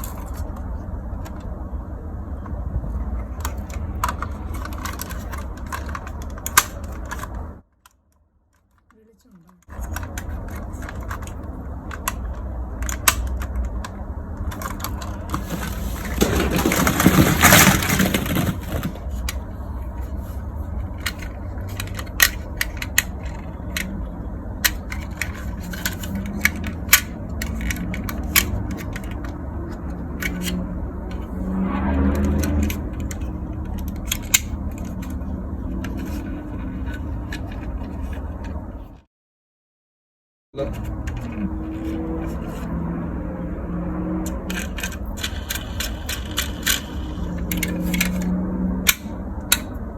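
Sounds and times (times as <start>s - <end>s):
plastic toys clicking and clattering: 0.0s - 31.4s, 32.2s - 39.0s, 40.6s - 43.0s, 44.0s - 49.9s
rustling scrape: 14.5s - 24.0s.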